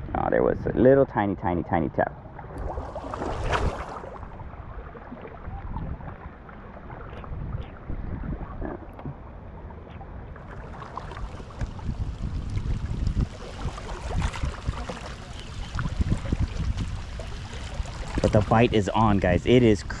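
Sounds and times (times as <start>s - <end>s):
water lapping: 2.2s - 20.0s
wind buffeting microphone: 2.6s - 9.2s, 11.0s - 20.0s.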